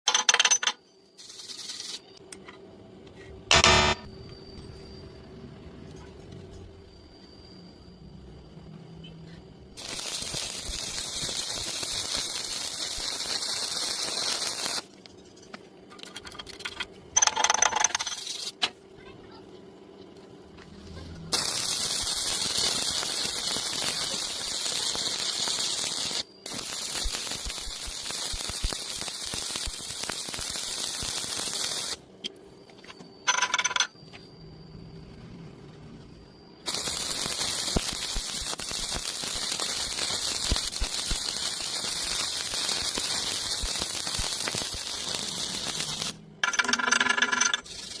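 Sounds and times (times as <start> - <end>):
welding arc crackling and hissing: 1.2 - 2.2, 9.8 - 15.1, 21.3 - 32.0, 36.6 - 46.2, 47.5 - 48.0.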